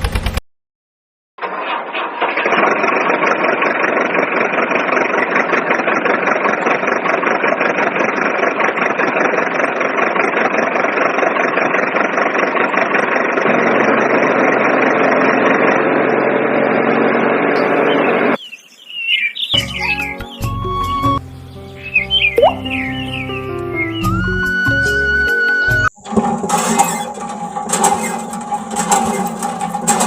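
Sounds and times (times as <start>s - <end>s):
small engine clattering: 1.5s - 17.7s, 26.0s - 30.0s.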